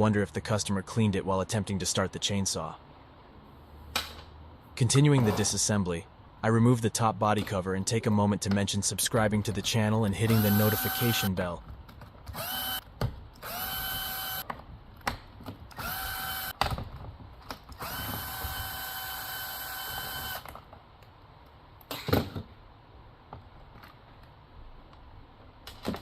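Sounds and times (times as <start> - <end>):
cordless drill whining: 10.3 - 11.3, 12.3 - 12.8, 13.4 - 14.4, 15.8 - 16.5, 17.8 - 20.5.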